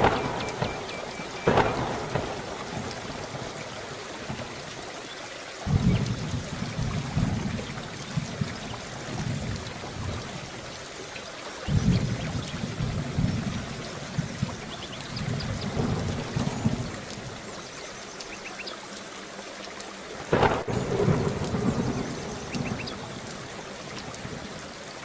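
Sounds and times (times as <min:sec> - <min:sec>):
low thunder rumbling: 0:00.0 - 0:04.6, 0:05.6 - 0:10.7, 0:11.6 - 0:17.6, 0:20.3 - 0:24.6
steady rain falling: 0:00.0 - 0:25.0.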